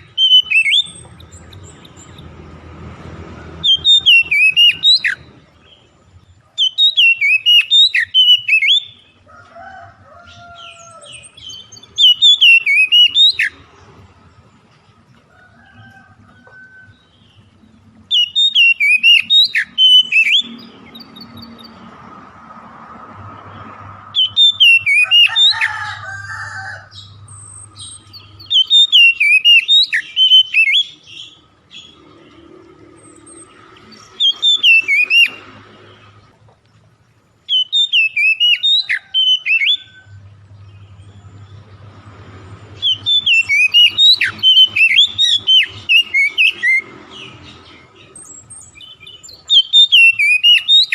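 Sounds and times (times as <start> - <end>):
songbird whistling song: 0.0 - 2.4, 3.6 - 5.9, 6.5 - 9.2, 10.2 - 13.7, 15.6 - 21.9, 24.1 - 25.8, 26.9 - 32.2, 32.9 - 36.2, 37.4 - 41.2, 42.8 - 50.9.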